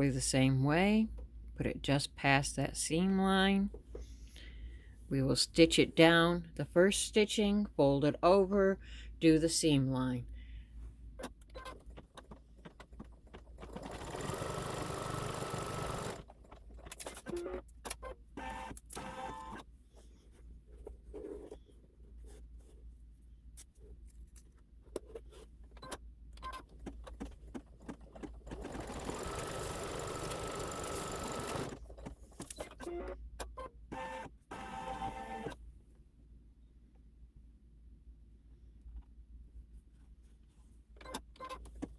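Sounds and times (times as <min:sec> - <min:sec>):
embroidery machine whirring: 0:13.7 - 0:16.2, 0:28.4 - 0:31.8.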